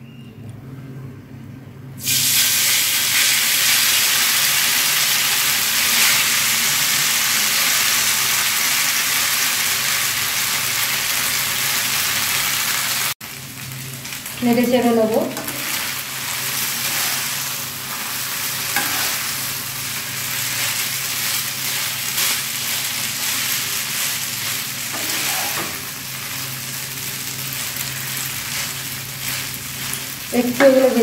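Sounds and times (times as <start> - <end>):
noodles sizzling in hot oil: 2.0 - 31.0
spatula scraping a pan: 16.5 - 17.5, 18.5 - 19.4, 20.4 - 26.5.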